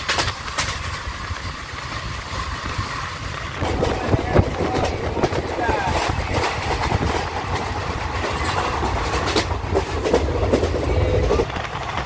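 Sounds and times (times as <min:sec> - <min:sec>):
carriage clacks and rattles: 0:00.0 - 0:01.1, 0:03.6 - 0:10.8
train wheels rumbling on rail: 0:00.0 - 0:12.0.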